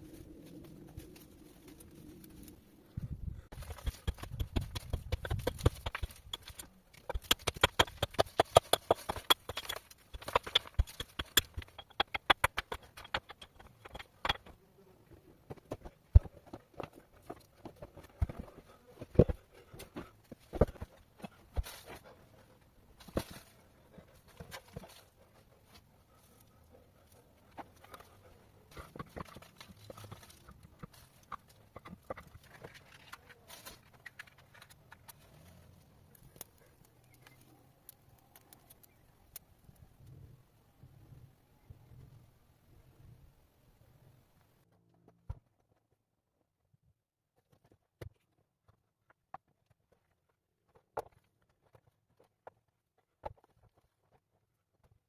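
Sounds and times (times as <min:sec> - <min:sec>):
hard objects knocking together: 0:03.5 - 0:14.6.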